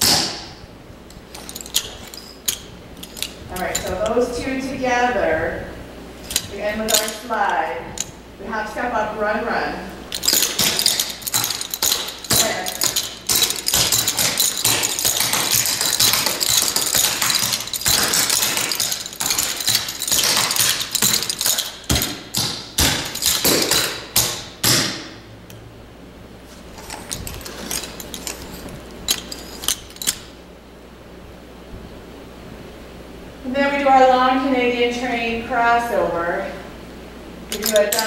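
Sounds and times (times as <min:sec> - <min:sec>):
tap shoes on hard floor: 0:10.3 - 0:25.1.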